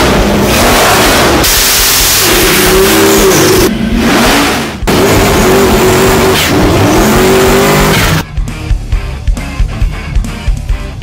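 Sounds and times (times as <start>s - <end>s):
car engine revving: 0.0s - 8.3s.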